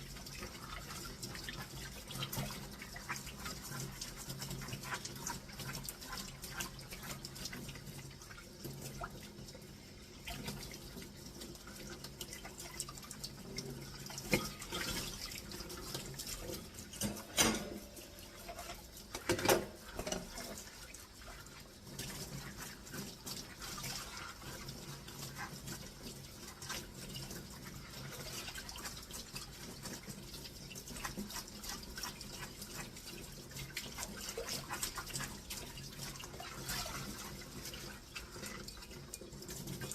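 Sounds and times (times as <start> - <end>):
tap water running and splashing: 0.0 - 39.9
dishes clinking: 14.3 - 14.9, 17.0 - 18.6, 19.2 - 20.4
dishes knocking: 17.0 - 17.9.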